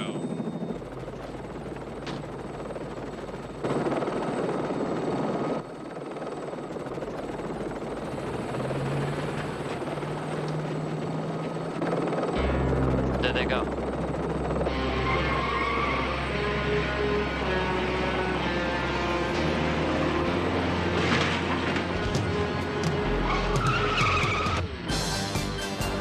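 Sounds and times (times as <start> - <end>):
helicopter rotor and engine: 0.0 - 25.9.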